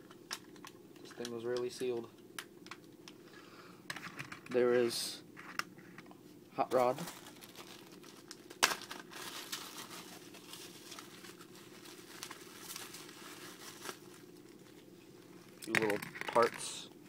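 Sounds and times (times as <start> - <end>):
plastic packaging crinkling: 6.7 - 16.8.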